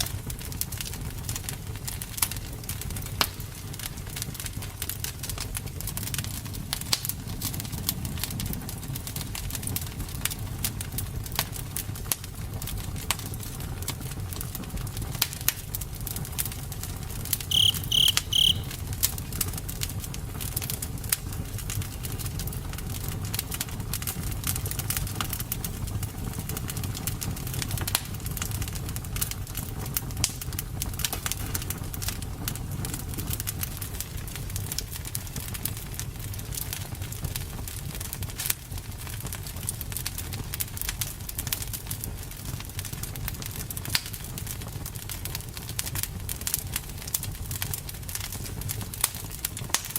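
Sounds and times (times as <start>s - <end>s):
campfire crackling and popping: 0.0s - 18.7s, 19.5s - 49.9s
short high chirps: 17.5s - 18.7s.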